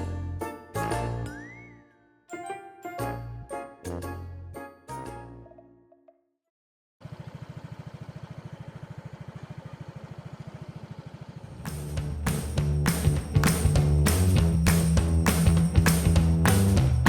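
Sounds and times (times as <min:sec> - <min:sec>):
music: 0:00.0 - 0:06.3, 0:11.6 - 0:17.0
motor engine idling: 0:07.0 - 0:17.0.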